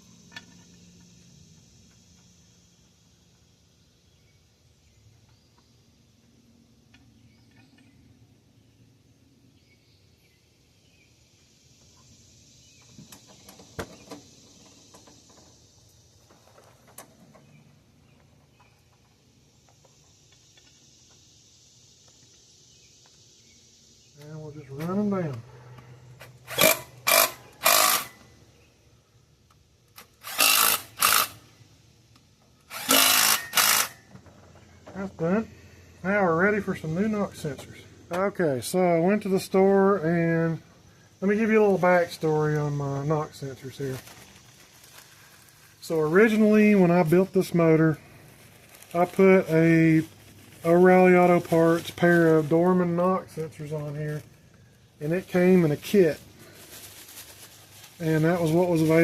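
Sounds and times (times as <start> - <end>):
cordless power tool spinning: 26.5 - 28.2, 30.0 - 31.4, 32.7 - 34.0.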